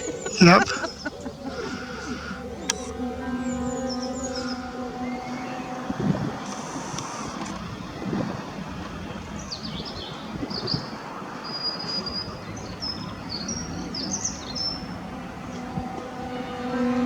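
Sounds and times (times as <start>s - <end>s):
steady low rumble: 0.0s - 10.5s
songbird singing: 0.0s - 17.0s.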